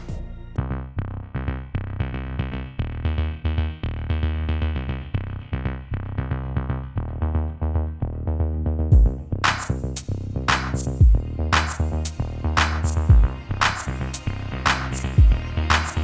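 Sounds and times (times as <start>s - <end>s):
electronic music with bass beat: 8.9s - 16.0s.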